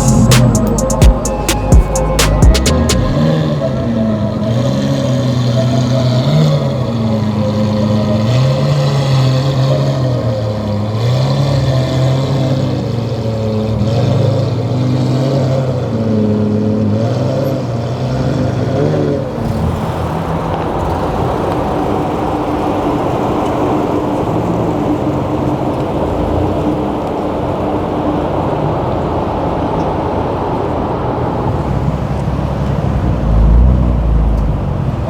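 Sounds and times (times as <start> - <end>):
constant tone: 0.0 - 13.8
car engine revving: 0.0 - 35.0
road noise: 0.0 - 35.0.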